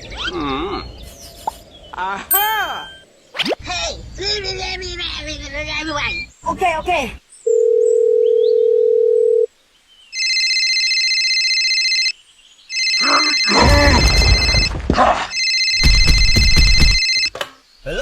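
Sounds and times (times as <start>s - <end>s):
telephone ringing: 7.5s - 9.5s, 10.2s - 12.1s, 12.7s - 14.7s, 15.3s - 17.4s.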